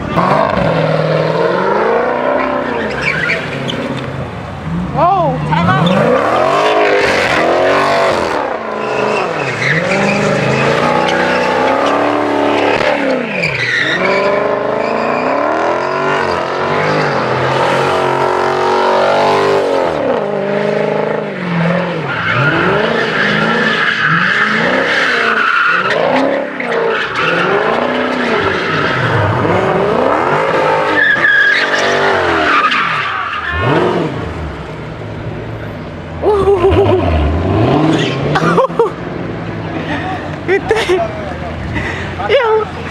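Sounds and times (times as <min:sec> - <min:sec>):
car engine revving: 0:00.0 - 0:40.5
tyres screeching: 0:01.7 - 0:04.3, 0:05.0 - 0:17.3, 0:22.0 - 0:34.2.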